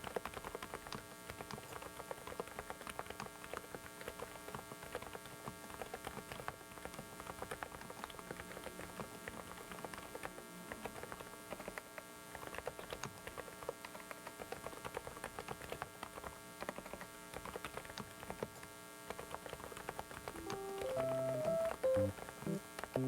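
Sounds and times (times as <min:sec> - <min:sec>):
keyboard key clicks: 0:12.4 - 0:22.1
electrical hum: 0:20.2 - 0:23.0.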